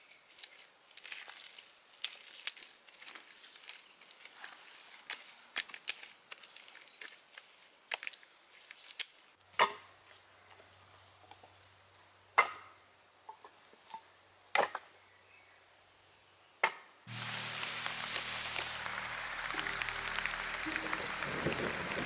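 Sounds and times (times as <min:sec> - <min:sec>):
axe chopping wood: 0:09.5 - 0:09.9, 0:12.4 - 0:12.7
loud steady noise with low hum: 0:17.1 - 0:22.0.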